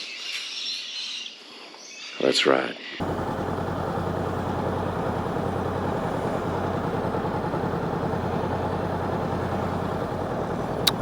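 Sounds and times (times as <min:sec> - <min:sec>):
motorcycle engine idling: 0:03.0 - 0:11.0.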